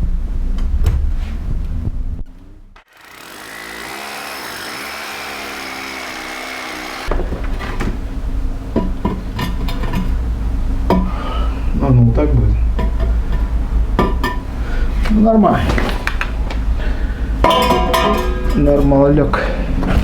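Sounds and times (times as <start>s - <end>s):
electric drill running: 2.9s - 7.1s
tools knocking and clicking: 8.7s - 10.2s.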